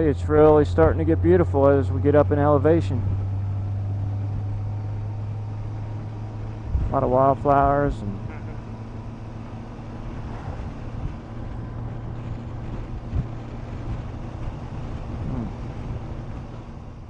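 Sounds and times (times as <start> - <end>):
motorcycle engine drone: 0.0 - 17.0
wind rush on microphone: 6.4 - 7.0, 9.3 - 17.0.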